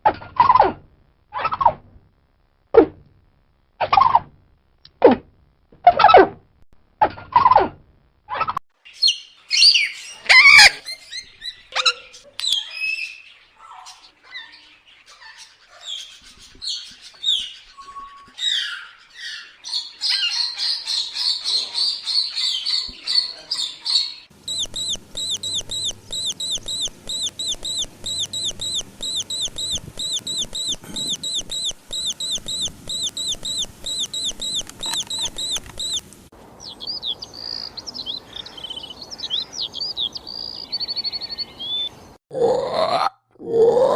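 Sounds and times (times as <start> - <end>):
birds chirping and calling: 8.9 - 42.2.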